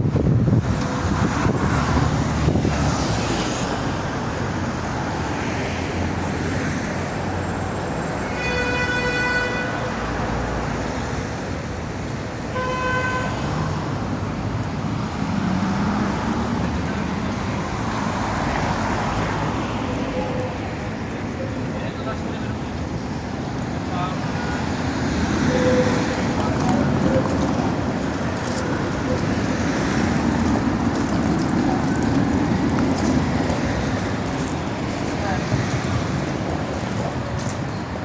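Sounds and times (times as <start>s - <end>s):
road traffic noise: 0.0s - 38.0s
car horn tooting: 8.2s - 9.9s, 12.5s - 13.5s.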